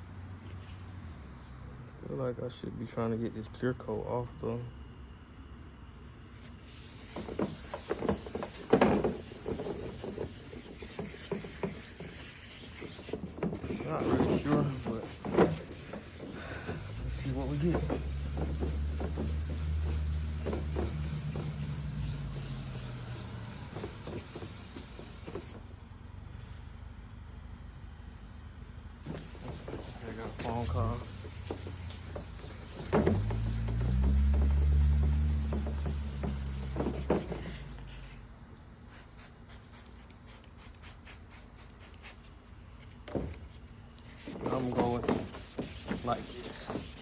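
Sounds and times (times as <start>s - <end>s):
steady hiss: 6.3s - 25.6s, 29.0s - 42.6s, 44.0s - 47.0s
wet sandpaper rubbing on plastic: 6.4s - 25.6s, 29.0s - 38.2s, 38.9s - 42.4s, 44.1s - 47.0s.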